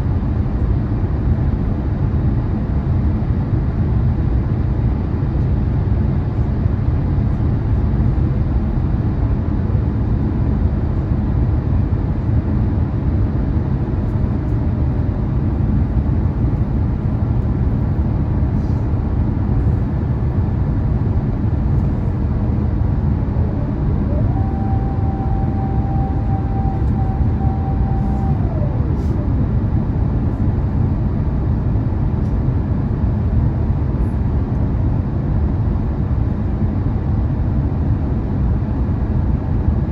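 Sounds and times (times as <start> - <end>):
aircraft cabin roar: 0.0 - 39.9
mechanical whine: 21.0 - 31.0.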